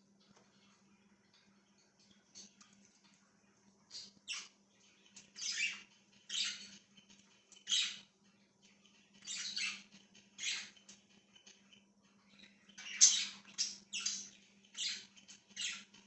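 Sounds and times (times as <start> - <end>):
budgerigars chirping and squawking: 3.9 - 16.0.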